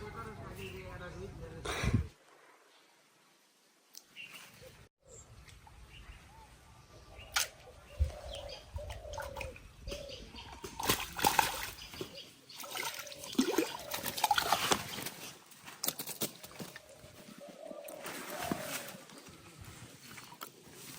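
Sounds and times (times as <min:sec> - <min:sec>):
water sloshing and splashing: 0:10.5 - 0:16.0.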